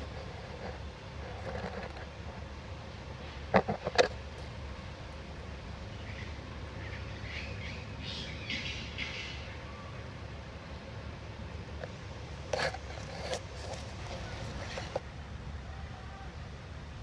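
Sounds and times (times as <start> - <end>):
birds chirping: 5.8 - 10.8.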